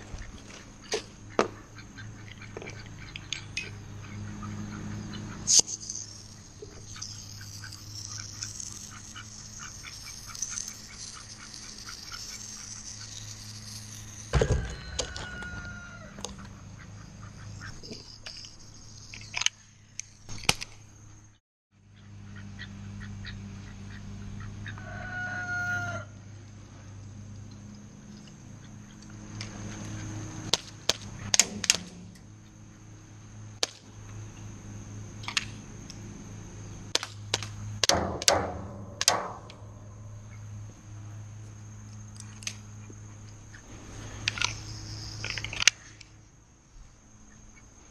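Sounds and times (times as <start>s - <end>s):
domestic fowl calling: 14.4s - 17.7s, 22.0s - 26.2s
steady hum: 26.1s - 47.9s.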